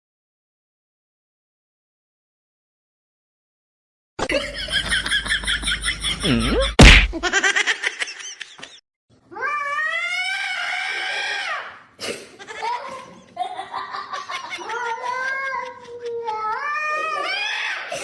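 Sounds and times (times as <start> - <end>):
sharp knock: 6.8 - 7.2
cat yowling: 9.4 - 11.7.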